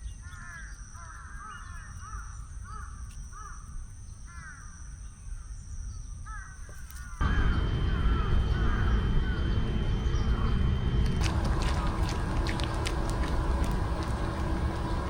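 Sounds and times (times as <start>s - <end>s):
crows cawing: 6.3s - 15.0s
low background rumble: 7.2s - 15.0s.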